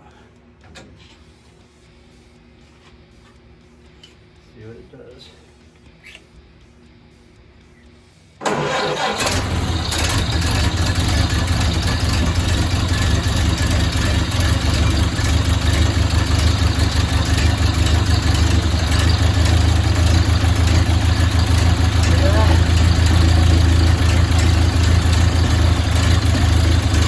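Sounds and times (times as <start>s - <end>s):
car engine starting and idling: 8.4s - 27.0s.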